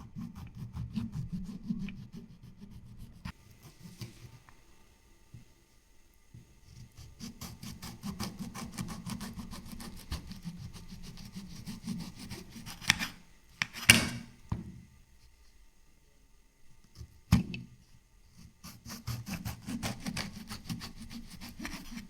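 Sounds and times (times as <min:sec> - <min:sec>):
sharp knocks: 0:13.6 - 0:14.3.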